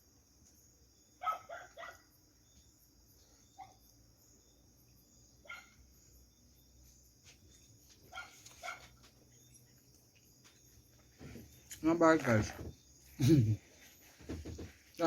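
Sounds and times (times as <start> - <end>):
distant dog barking: 1.2 - 2.2, 5.4 - 5.8, 8.1 - 8.9.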